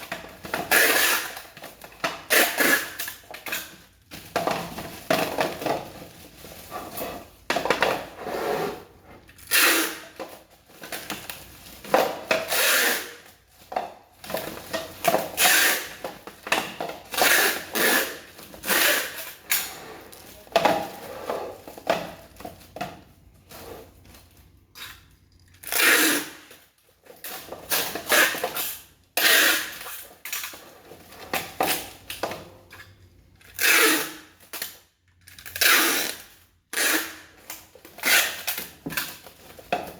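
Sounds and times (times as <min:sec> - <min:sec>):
packaging rustling and clattering: 0:00.0 - 0:25.6, 0:37.4 - 0:39.9.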